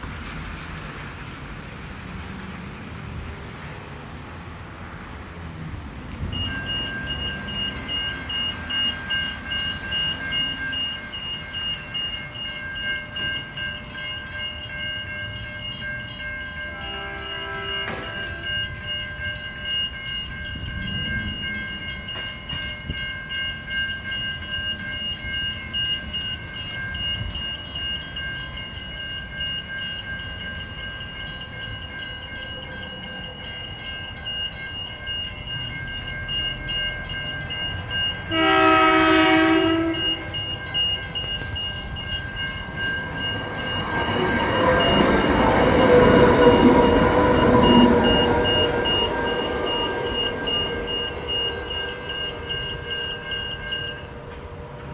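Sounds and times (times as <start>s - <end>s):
passing train rumble: 0.0s - 54.9s
level crossing warning bells: 3.0s - 54.9s
train horn: 16.7s - 18.6s, 38.3s - 40.3s.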